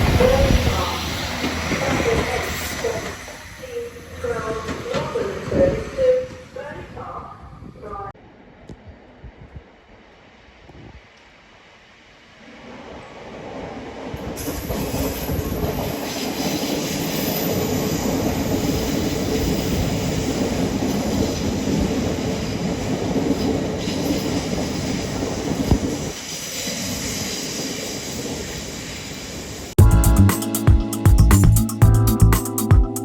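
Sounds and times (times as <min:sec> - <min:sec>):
train wheels rumbling on rails: 0:00.0 - 0:07.4, 0:12.6 - 0:30.3.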